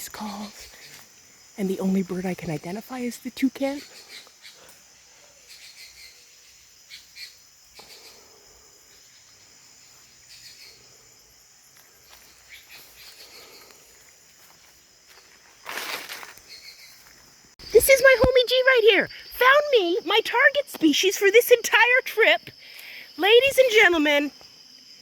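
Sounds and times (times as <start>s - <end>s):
insects droning: 0.0s - 25.0s
rustling: 14.6s - 17.3s.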